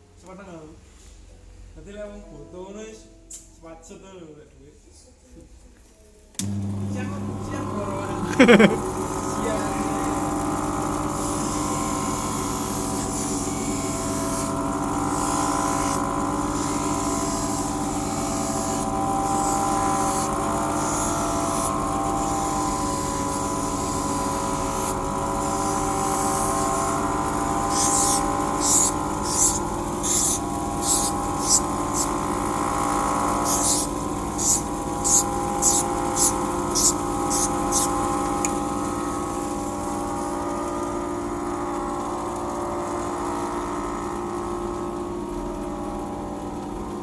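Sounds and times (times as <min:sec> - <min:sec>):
grinder motor whine: 0:06.4 - 0:47.0
lens hissing on grinding wheel: 0:09.7 - 0:39.8.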